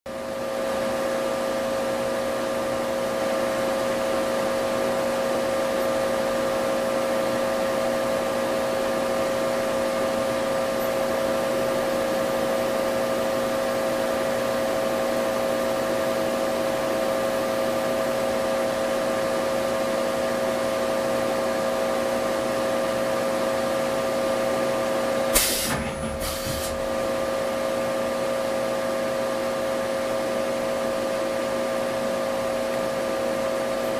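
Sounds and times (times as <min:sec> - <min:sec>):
machine whine over hiss: 0:25.3 - 0:27.2.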